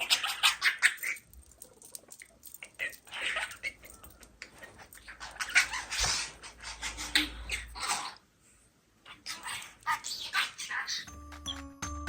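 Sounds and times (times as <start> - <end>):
parakeet chirping and squawking: 0.0 - 1.4, 2.6 - 8.3, 9.1 - 11.7.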